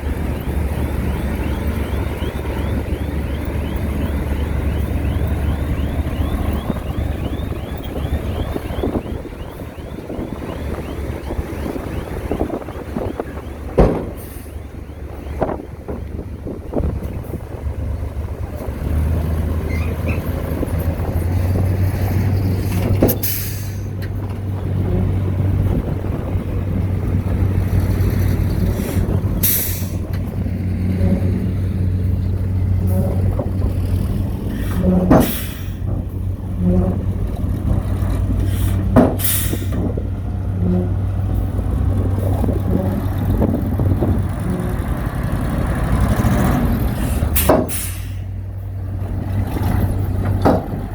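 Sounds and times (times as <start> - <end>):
diesel engine humming: 0.0 - 50.9.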